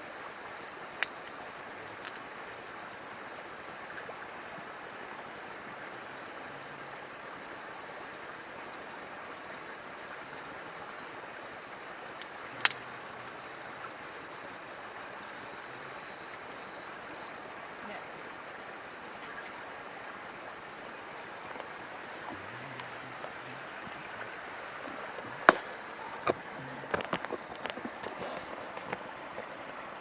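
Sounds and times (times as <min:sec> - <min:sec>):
fire crackling and hissing: 0:00.9 - 0:02.5, 0:21.2 - 0:30.0.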